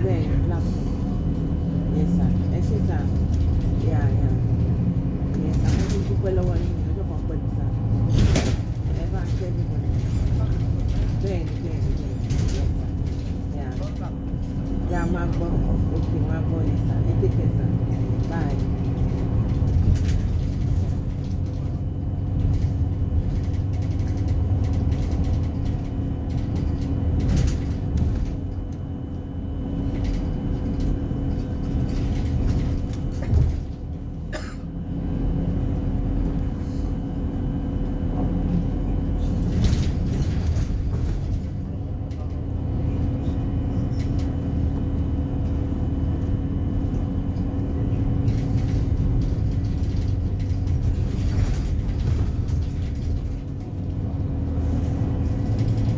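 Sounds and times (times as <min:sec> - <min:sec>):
bus engine drone: 0:00.0 - 0:55.9
road rumble: 0:00.0 - 0:55.9
knocks and rattles: 0:48.1 - 0:53.9.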